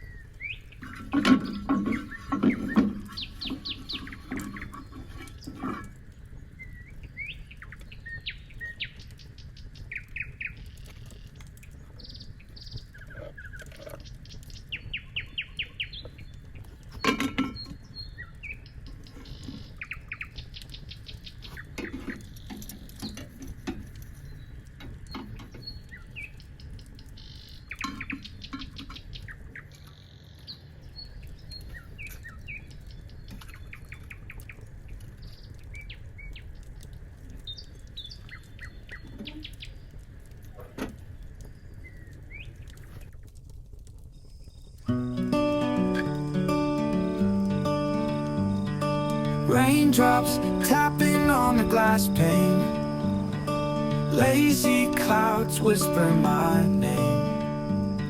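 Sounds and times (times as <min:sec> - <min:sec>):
birds chirping: 0:00.0 - 0:23.3, 0:44.9 - 0:58.0.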